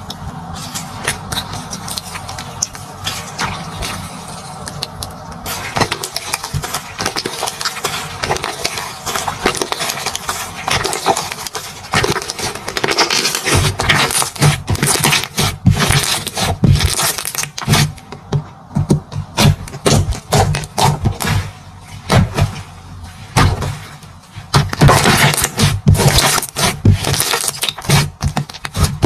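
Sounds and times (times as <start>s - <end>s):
slime clicking and crackling: 0.0s - 22.7s, 23.4s - 29.0s.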